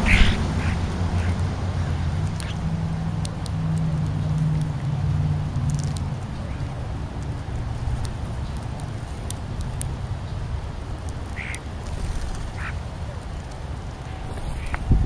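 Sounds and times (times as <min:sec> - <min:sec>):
wind on microphone: 0:14.2 - 0:15.0.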